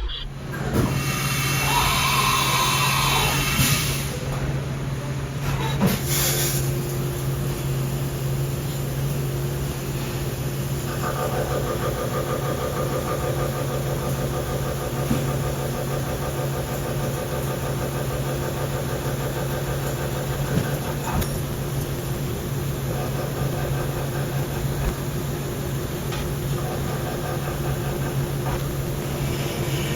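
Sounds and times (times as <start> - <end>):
milling machine hum: 6.7 - 29.9.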